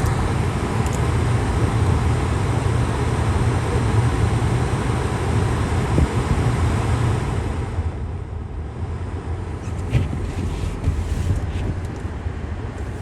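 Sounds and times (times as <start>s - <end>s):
car driving rumble: 0.0s - 6.4s, 9.5s - 13.0s.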